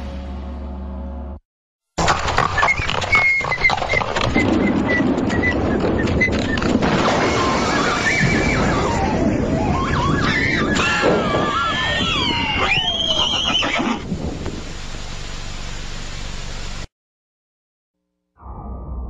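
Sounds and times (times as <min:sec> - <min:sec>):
horse whinnying: 0:02.1 - 0:05.0, 0:07.7 - 0:14.1.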